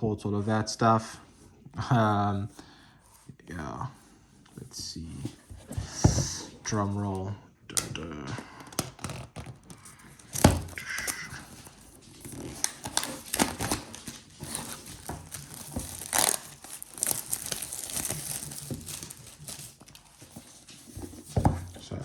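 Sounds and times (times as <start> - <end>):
packaging tearing and crinkling: 8.6 - 21.3.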